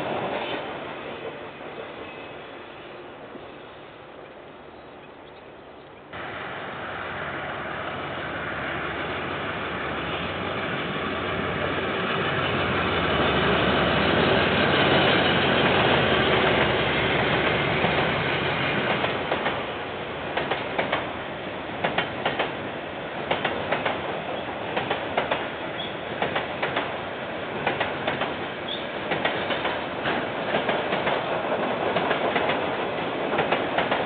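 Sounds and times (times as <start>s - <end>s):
train rumbling past: 0.0s - 4.8s, 6.2s - 34.0s
wheels clicking over rail joints: 18.8s - 19.7s, 20.3s - 21.1s, 21.8s - 27.0s, 27.6s - 34.0s.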